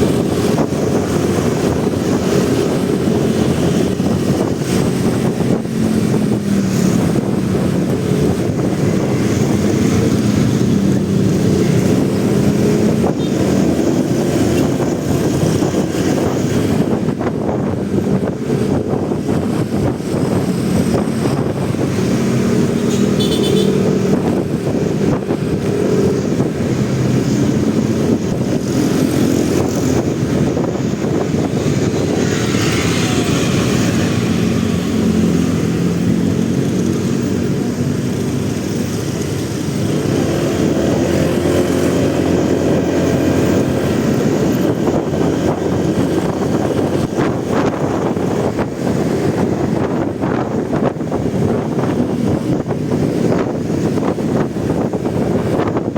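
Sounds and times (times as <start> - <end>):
motorcycle engine revving: 0.0 - 55.9
wind and road noise: 0.0 - 55.9.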